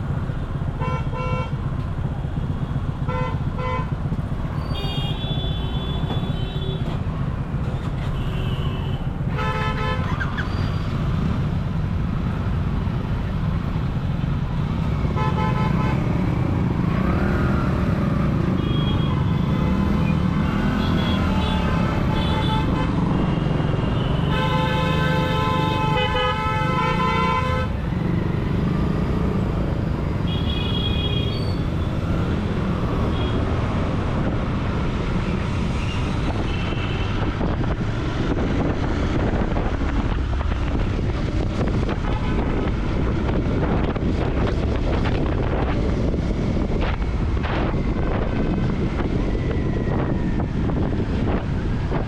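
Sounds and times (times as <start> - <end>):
vehicle horns honking: 15.2 - 16.0, 20.7 - 23.0, 23.9 - 27.8, 30.2 - 31.6.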